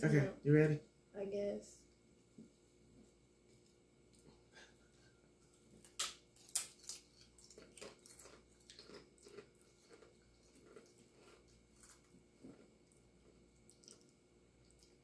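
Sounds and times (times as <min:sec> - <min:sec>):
crunchy chip chewing: 0:05.8 - 0:15.0.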